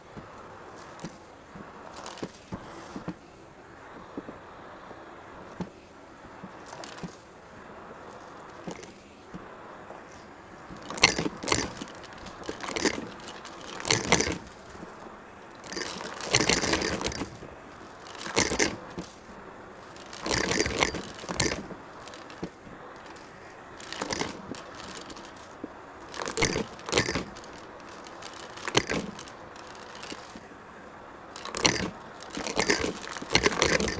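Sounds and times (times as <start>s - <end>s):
vacuum brush scraping hard floor: 10.1s - 30.5s.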